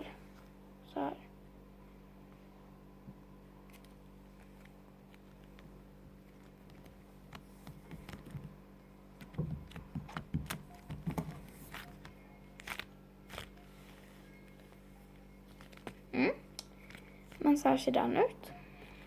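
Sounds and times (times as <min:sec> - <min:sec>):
steady low hum: 0:00.0 - 0:19.0
slime squelching: 0:09.2 - 0:17.7.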